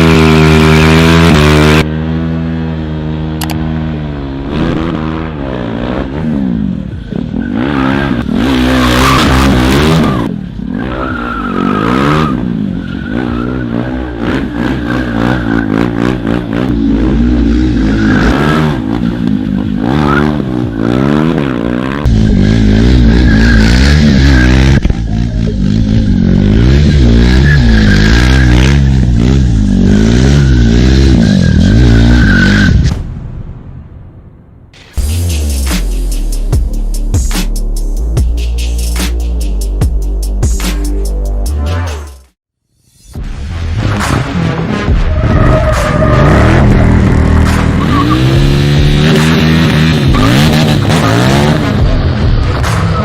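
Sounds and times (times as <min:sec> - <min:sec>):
motorcycle engine revving: 0:00.0 - 0:32.8, 0:43.9 - 0:53.0.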